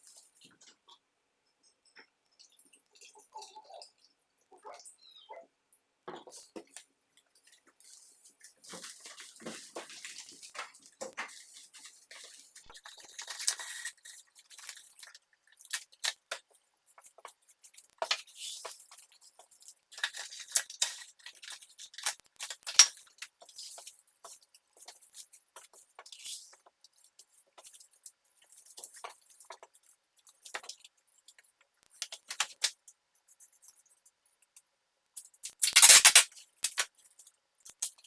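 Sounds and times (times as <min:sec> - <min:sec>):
small hard objects clicking: 0:12.6 - 0:24.0, 0:35.2 - 0:38.0.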